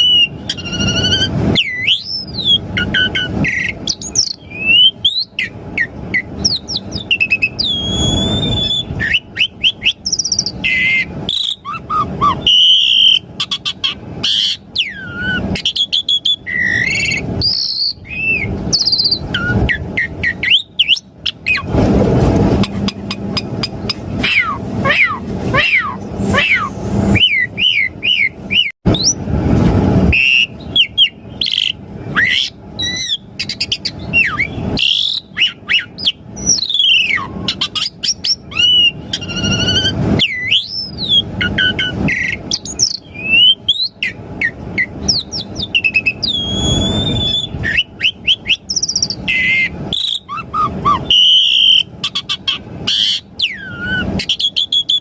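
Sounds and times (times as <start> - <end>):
starling singing varied song: 22.4 - 29.2.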